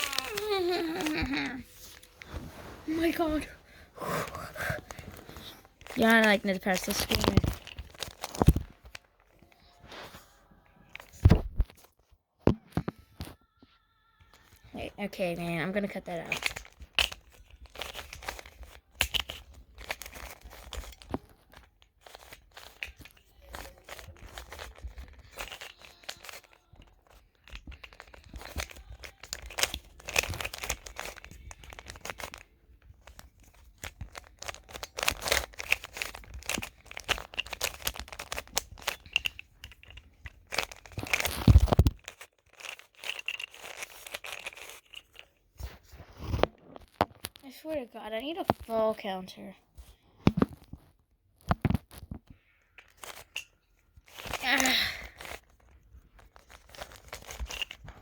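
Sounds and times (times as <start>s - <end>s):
puzzle cube clicking: 0.0s - 2.2s, 2.9s - 9.1s, 16.2s - 21.2s, 22.0s - 32.4s, 33.0s - 45.2s.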